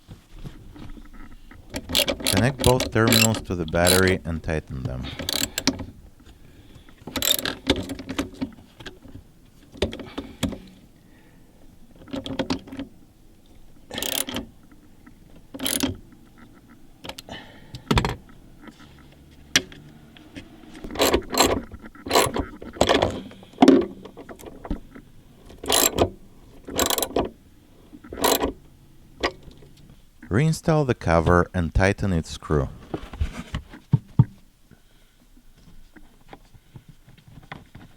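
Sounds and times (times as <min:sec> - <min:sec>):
ratchet clicks: 0:01.7 - 0:04.2, 0:05.2 - 0:05.8, 0:07.1 - 0:08.0, 0:13.9 - 0:14.8, 0:15.4 - 0:16.4, 0:20.9 - 0:23.2, 0:25.6 - 0:27.3, 0:28.1 - 0:28.6.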